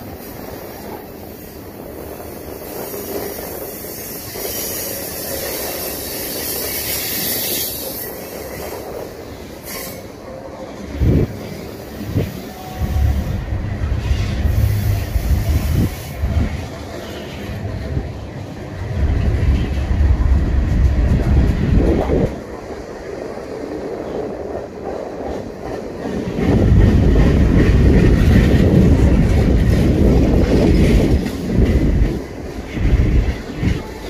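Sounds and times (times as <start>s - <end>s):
train wheels squealing: 2.6s - 10.8s.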